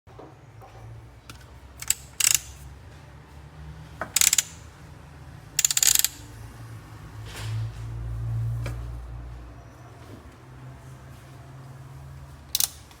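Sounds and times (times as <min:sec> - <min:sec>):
coffee grinder clicking and rattling: 0:01.8 - 0:02.5, 0:04.2 - 0:04.5, 0:05.6 - 0:06.2.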